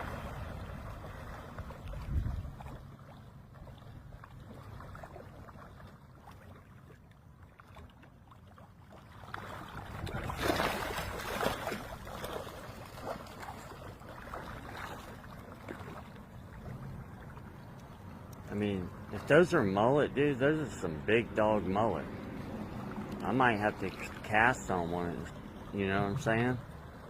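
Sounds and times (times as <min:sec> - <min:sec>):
low wind rumble: 0:00.0 - 0:03.0, 0:16.4 - 0:27.0
shallow water: 0:00.0 - 0:27.0
fish splashing at surface: 0:07.7 - 0:16.2.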